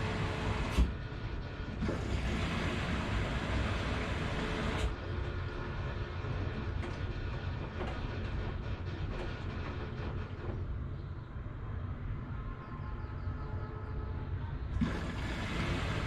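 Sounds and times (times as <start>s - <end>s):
washing machine rumbling: 0.0s - 11.1s, 14.7s - 16.0s.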